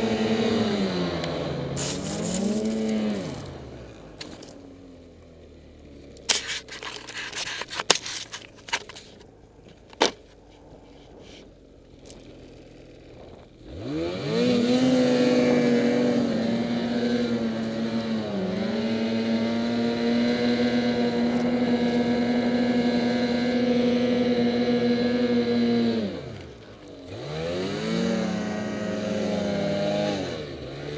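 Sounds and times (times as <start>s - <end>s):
snowmobile engine revving: 0.0s - 4.4s, 10.9s - 30.9s.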